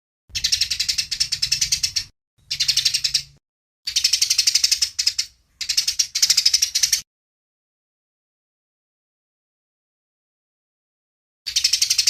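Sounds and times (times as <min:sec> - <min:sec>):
sparrows chattering: 0:00.3 - 0:07.0, 0:11.5 - 0:12.0.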